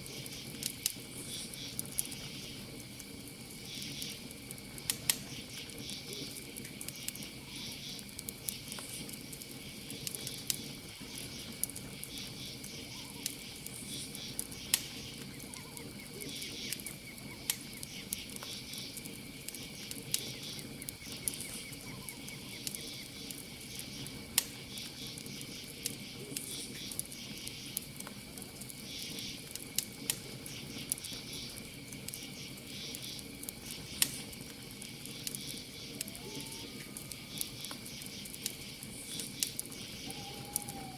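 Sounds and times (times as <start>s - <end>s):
campfire crackling and popping: 0.0s - 40.9s
cricket trill: 0.0s - 40.9s
pulsing insect chirps: 35.1s - 40.9s.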